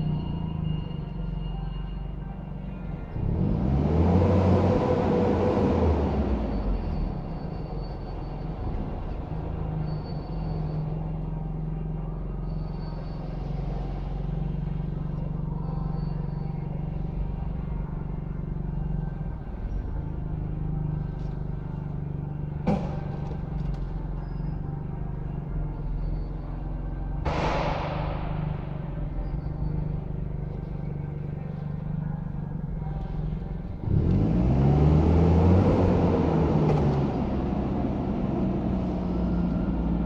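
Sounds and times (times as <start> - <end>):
forklift engine hum: 0.0 - 40.0
sharp knock: 27.3 - 29.9.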